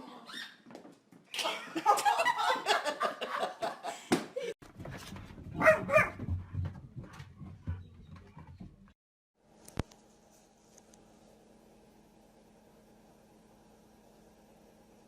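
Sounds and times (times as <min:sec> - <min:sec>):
dog boots clattering and clicking: 0:04.6 - 0:09.0
dog barking: 0:05.6 - 0:06.3.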